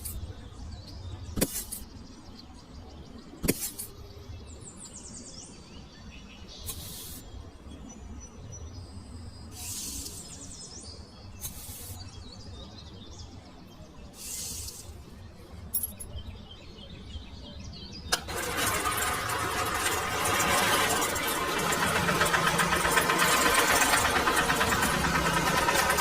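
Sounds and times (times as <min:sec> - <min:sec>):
short hissing bursts: 0:06.7 - 0:07.3, 0:09.5 - 0:10.4, 0:11.4 - 0:12.1, 0:14.2 - 0:15.0
engine starting with click: 0:18.1 - 0:26.0
engine running loudly: 0:18.2 - 0:26.0.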